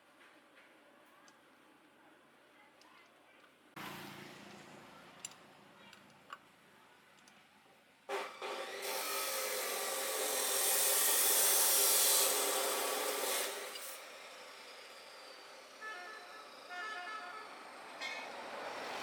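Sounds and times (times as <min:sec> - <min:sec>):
power tool rasping on a surface: 0:08.1 - 0:15.4.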